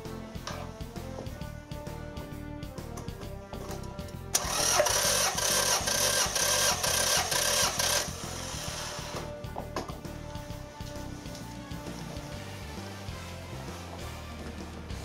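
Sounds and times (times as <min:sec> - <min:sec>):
background music: 0:00.0 - 0:15.0
starter motor cranking engine: 0:04.3 - 0:09.2.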